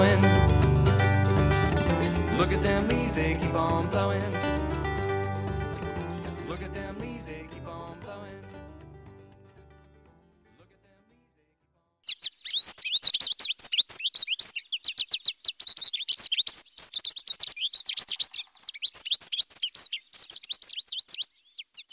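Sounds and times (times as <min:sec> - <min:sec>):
flock of small birds chirping: 0:12.1 - 0:21.9.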